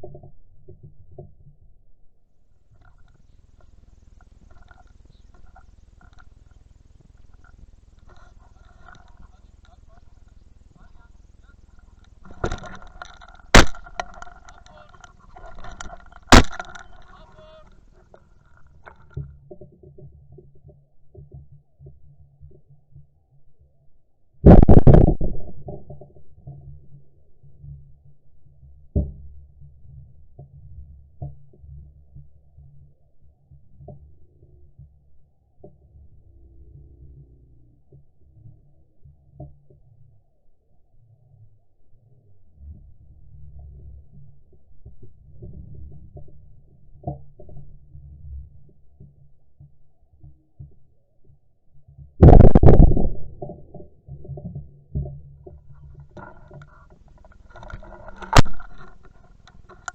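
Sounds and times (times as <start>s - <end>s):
camera handling rumble: 12.0s - 17.4s, 52.2s - 53.3s, 55.7s - 59.9s
shotgun blast: 13.6s - 13.9s, 16.3s - 16.7s, 52.2s - 53.2s
camera handling thumps: 13.6s - 14.6s, 15.6s - 17.1s, 58.2s - 59.0s.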